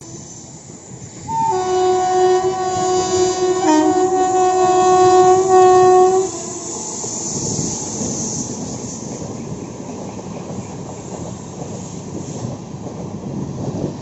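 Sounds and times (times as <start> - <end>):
train rumble: 0.0 - 14.0
locomotive horn blast: 1.3 - 7.4.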